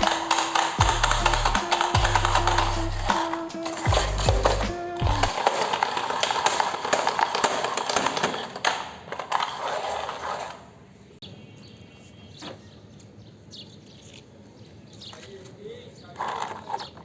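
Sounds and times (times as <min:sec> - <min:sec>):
rolling rattling clatter: 0:00.0 - 0:10.6.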